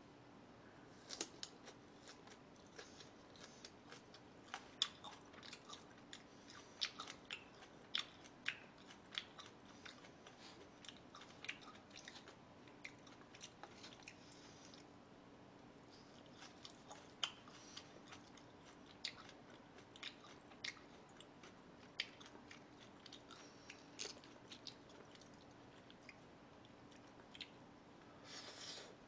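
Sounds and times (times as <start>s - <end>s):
person chewing food: 1.0s - 15.0s, 15.9s - 27.6s.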